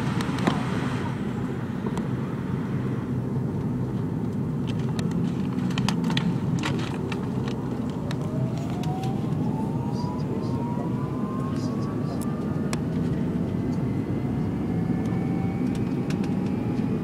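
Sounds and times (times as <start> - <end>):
airliner cabin rumble: 0.0 - 17.0
thin whine rising in pitch: 7.8 - 17.0.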